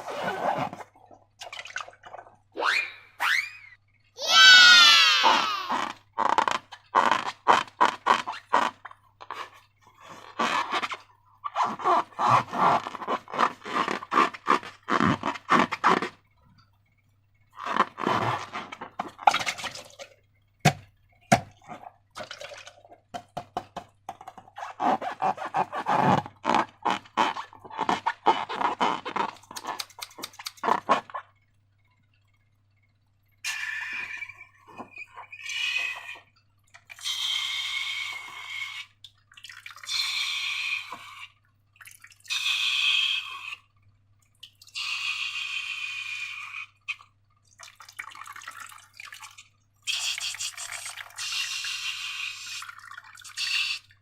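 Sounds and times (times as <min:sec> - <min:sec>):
slime squelching and clicking: 0:27.3 - 0:31.2.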